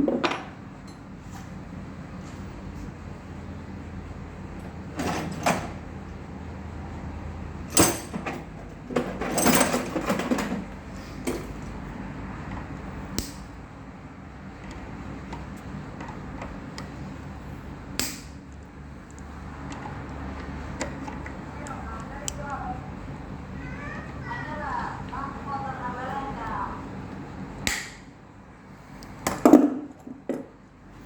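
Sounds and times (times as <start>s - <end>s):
steady low hum: 10.5s - 31.0s.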